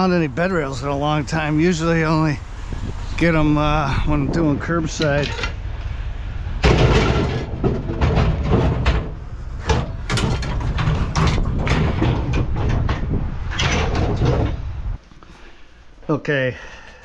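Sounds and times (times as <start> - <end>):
steady low rumble: 0.0 - 15.0
knocks and clatters: 4.9 - 5.6, 6.6 - 15.0
sharp bangs: 6.6 - 14.6.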